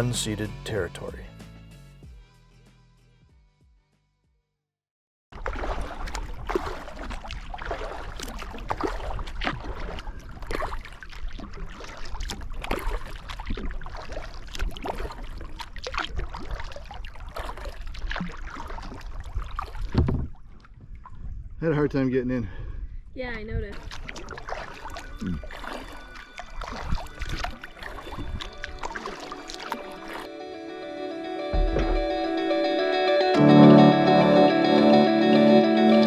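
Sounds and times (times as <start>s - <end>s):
water splashing around kayak: 5.4s - 21.6s, 23.2s - 30.3s, 31.5s - 32.4s
paddle strokes: 23.8s - 30.3s
heavy thump: 31.6s - 32.5s.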